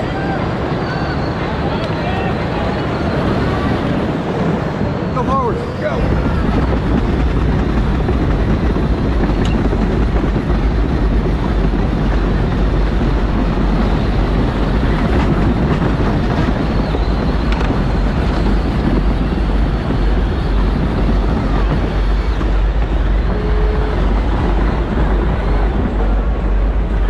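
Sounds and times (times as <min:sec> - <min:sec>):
ride-on car motor rumbling: 0:05.9 - 0:27.0.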